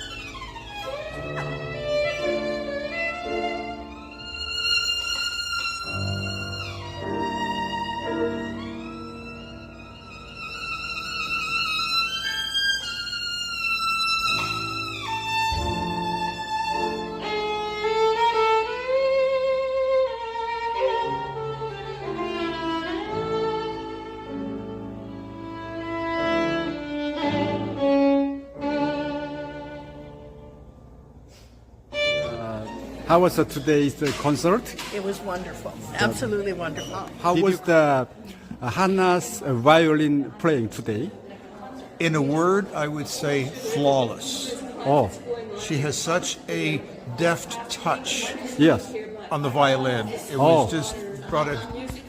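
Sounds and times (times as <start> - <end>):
violin playing slow melody: 0.0 - 30.8, 31.9 - 34.0
piano accompaniment: 0.0 - 31.3.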